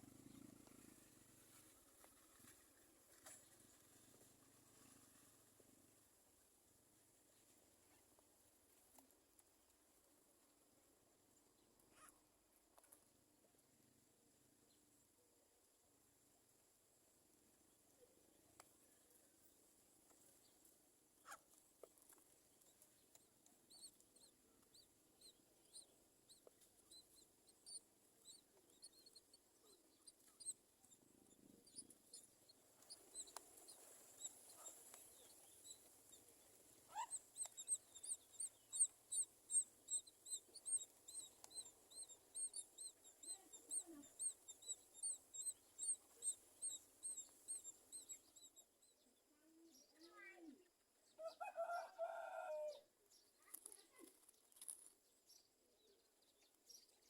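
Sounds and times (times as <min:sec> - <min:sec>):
bird chirping: 0:22.7 - 0:51.8.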